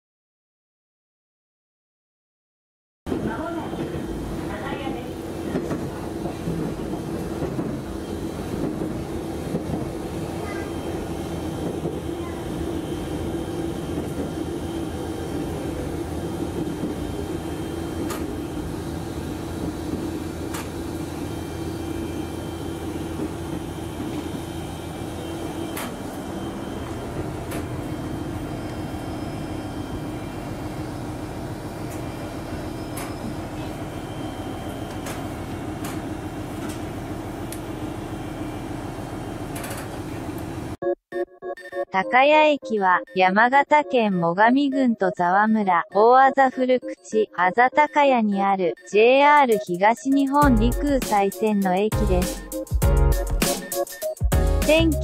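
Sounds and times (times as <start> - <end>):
railcar engine drone: 3.1 - 40.8.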